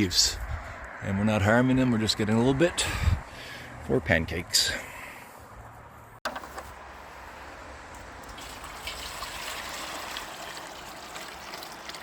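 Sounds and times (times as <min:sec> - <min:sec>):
liquid pouring into container: 0:08.0 - 0:12.0.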